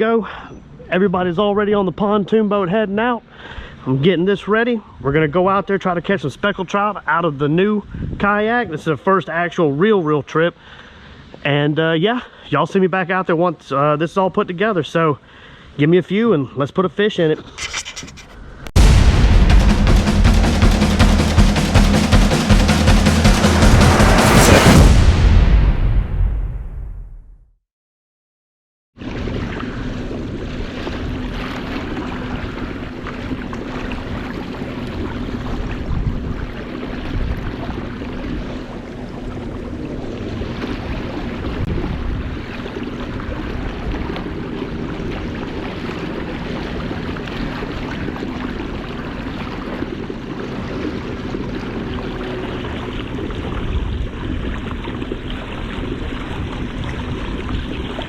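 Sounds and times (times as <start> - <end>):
steady low hum: 17.6 - 26.2
waves splashing: 17.6 - 26.2, 29.0 - 58.0
wind buffeting microphone: 32.0 - 47.0, 51.8 - 58.0.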